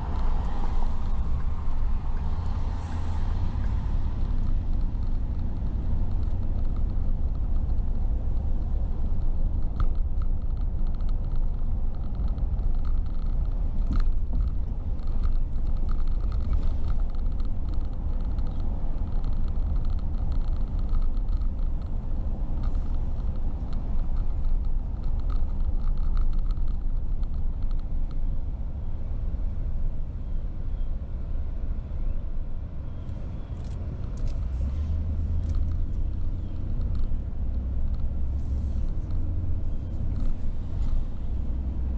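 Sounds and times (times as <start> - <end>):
road and engine rumble: 0.0 - 41.9.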